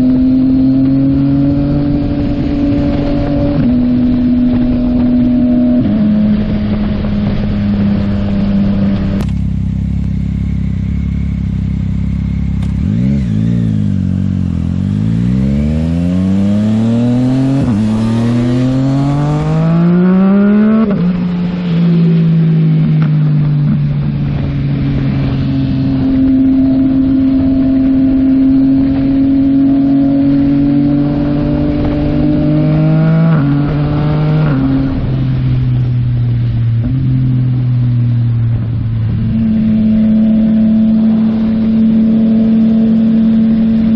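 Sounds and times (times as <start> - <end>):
motorcycle engine accelerating: 0.0 - 43.9.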